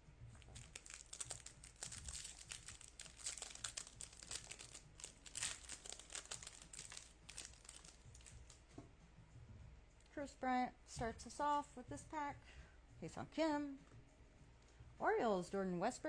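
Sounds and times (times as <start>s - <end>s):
foil wrapper crinkling and tearing: 0.4s - 8.6s.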